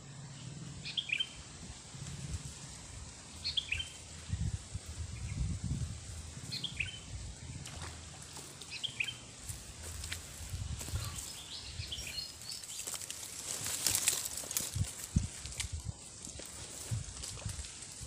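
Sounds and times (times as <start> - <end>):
birds chirping: 0.0 - 1.6, 3.1 - 14.7
rustling hiss: 0.6 - 18.0.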